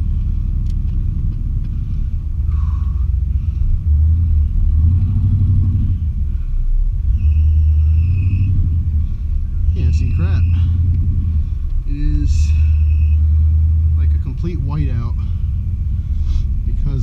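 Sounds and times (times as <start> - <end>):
truck engine rumble: 0.0 - 17.0
belt squeal: 7.0 - 8.6, 9.6 - 10.9, 12.4 - 13.4.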